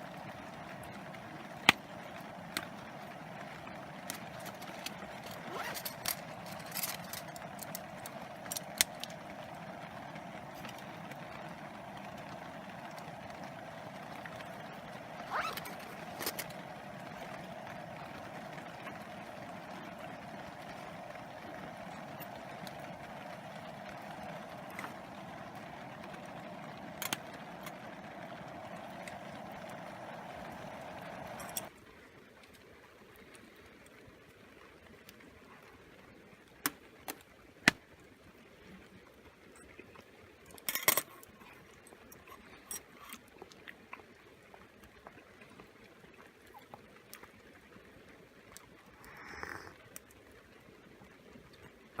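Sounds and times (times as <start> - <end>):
rain falling on a tarp: 0.0 - 52.0
sharp clicks and pops: 0.1 - 31.7.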